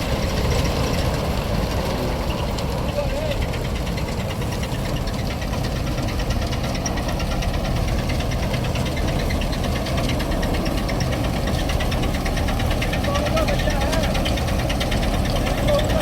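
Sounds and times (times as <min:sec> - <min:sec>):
diesel engine clattering: 0:00.0 - 0:16.0.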